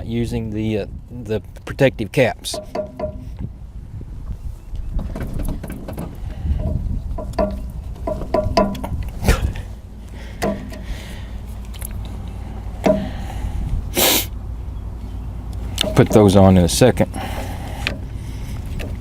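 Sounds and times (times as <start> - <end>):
steady low rumble: 0.0 - 19.0
hose couplers clicking and knocking: 2.4 - 3.5, 5.0 - 9.2, 10.4 - 11.0, 12.8 - 13.3, 15.5 - 16.4, 17.4 - 19.0
short hiss: 14.0 - 14.4.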